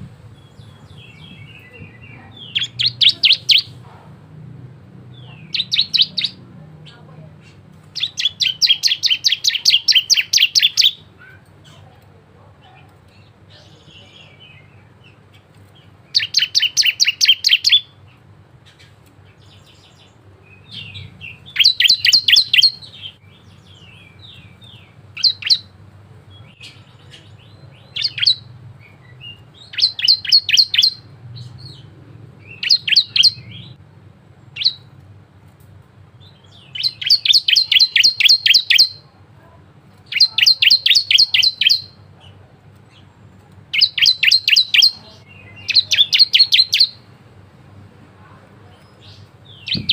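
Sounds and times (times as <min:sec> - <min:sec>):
bird singing rapid high notes: 0:00.3 - 0:03.8, 0:05.2 - 0:06.4, 0:08.0 - 0:11.0, 0:16.1 - 0:18.0, 0:20.6 - 0:25.7, 0:29.3 - 0:33.8, 0:36.4 - 0:39.0, 0:40.1 - 0:42.0, 0:43.8 - 0:47.1, 0:49.5 - 0:49.9.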